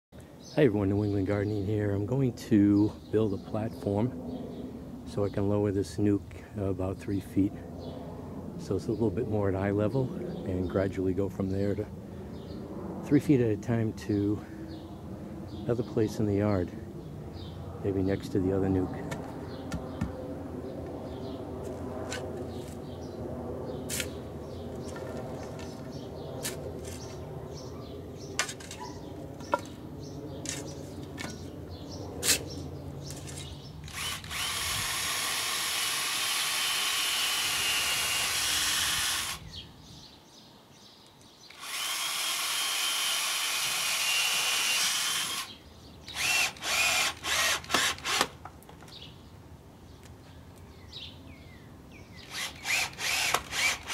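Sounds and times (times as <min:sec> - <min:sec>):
low hum: 0:16.7 - 0:35.0
power drill driving into wood: 0:33.9 - 0:39.4, 0:41.5 - 0:45.5, 0:46.1 - 0:48.4, 0:52.3 - 0:53.9.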